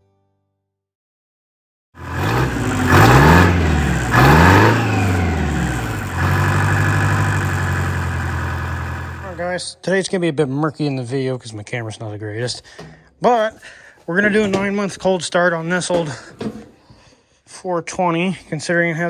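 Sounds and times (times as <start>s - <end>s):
two-cylinder engine revving: 2.0s - 9.4s.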